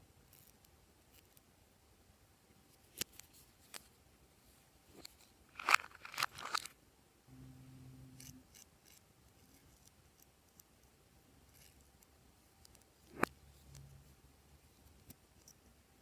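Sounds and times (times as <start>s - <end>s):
low hum: 7.3s - 8.6s.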